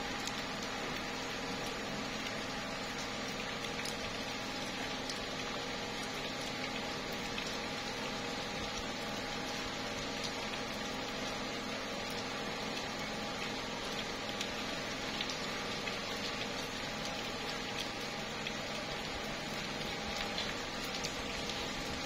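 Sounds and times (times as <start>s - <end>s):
faint steady hum: 0.0s - 22.0s
rain on tree leaves: 0.0s - 22.0s.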